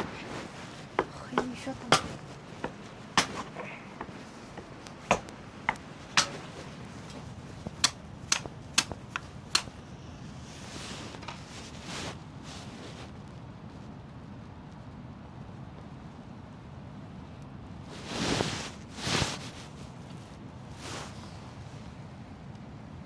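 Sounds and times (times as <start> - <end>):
firewood cracking and knocking: 0.0 - 11.9.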